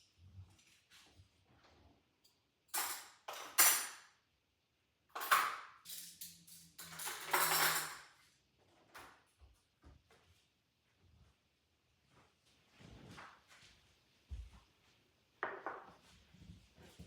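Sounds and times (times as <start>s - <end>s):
dishes and cutlery clinking: 2.2s - 4.2s, 5.1s - 8.3s.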